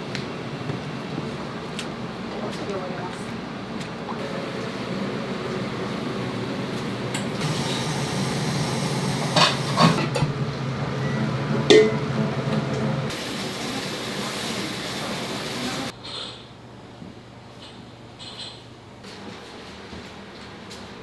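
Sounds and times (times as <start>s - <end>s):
kitchen cooking noise: 0.0s - 16.6s
utensils clinking: 1.4s - 16.3s
low hum: 10.0s - 13.1s.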